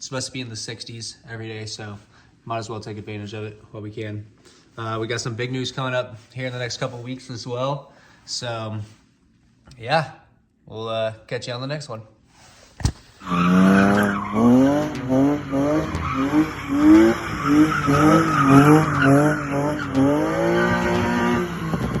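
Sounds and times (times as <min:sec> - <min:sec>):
tyres squealing: 0:13.2 - 0:21.8
car engine revving hard: 0:13.2 - 0:22.0.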